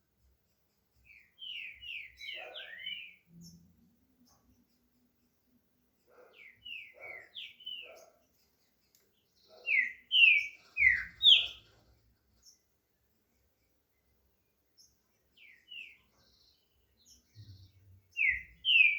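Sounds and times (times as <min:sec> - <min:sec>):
bird whistling song: 0:01.1 - 0:03.6, 0:06.3 - 0:08.1, 0:09.5 - 0:11.6, 0:15.4 - 0:16.1, 0:17.4 - 0:18.9.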